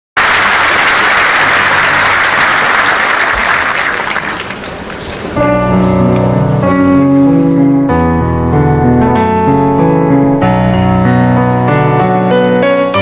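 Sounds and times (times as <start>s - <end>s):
audience applause: 0.2s - 5.4s
piano playing held chords: 5.2s - 13.0s.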